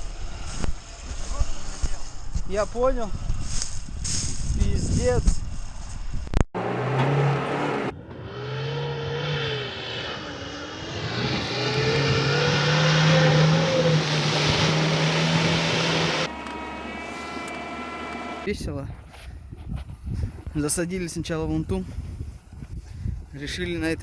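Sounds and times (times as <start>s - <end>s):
off-road vehicle engine revving: 6.6s - 18.5s.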